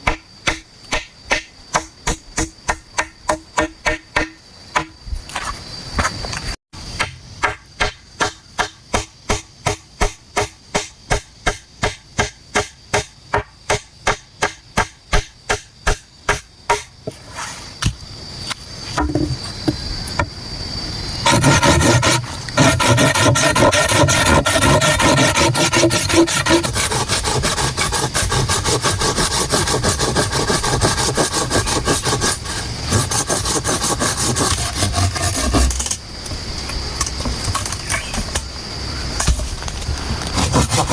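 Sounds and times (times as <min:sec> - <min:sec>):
hand tool scraping bamboo: 0:21.2 - 0:36.0, 0:39.2 - 0:40.9.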